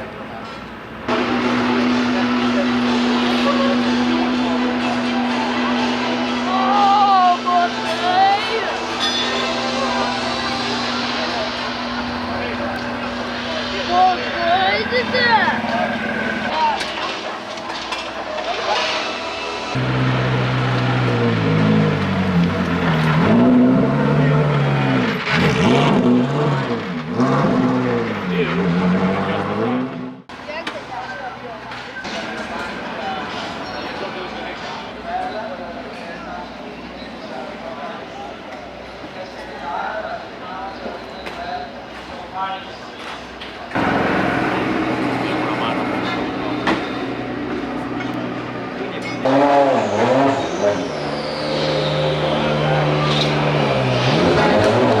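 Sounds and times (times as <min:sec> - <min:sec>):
track noise: 0:00.0 - 0:35.0, 0:43.4 - 0:55.0
race car engines at speed: 0:00.0 - 0:55.0.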